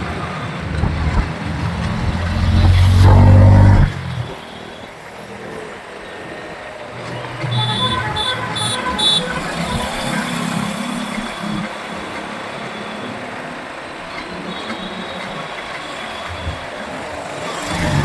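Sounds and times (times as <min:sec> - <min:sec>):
motorcycle engine: 0:00.0 - 0:04.8
road noise: 0:00.0 - 0:18.0
vehicle horn beeping: 0:07.5 - 0:10.4.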